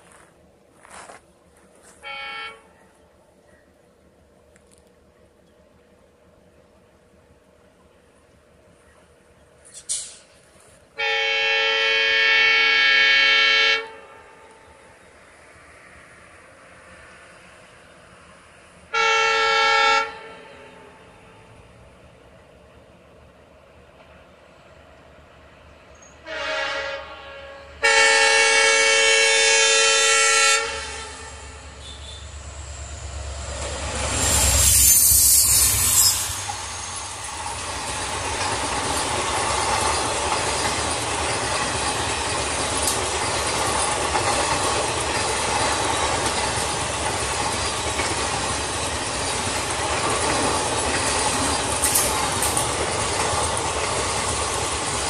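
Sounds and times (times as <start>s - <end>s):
clickety-clack of coaches on rails: 0.0s - 55.0s
train passing by: 0.0s - 55.0s
locomotive horn blasts: 1.8s - 2.9s, 11.0s - 14.3s, 18.9s - 21.0s, 26.2s - 32.5s.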